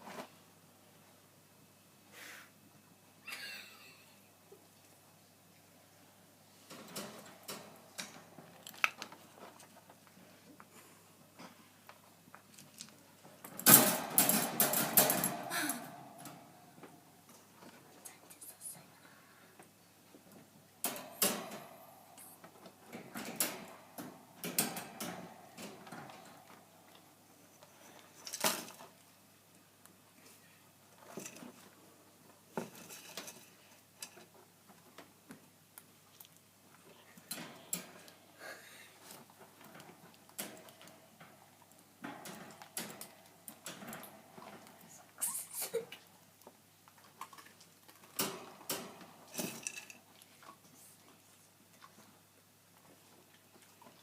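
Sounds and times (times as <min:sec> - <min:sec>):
rats scrabbling in cage: 0:39.0 - 0:45.6.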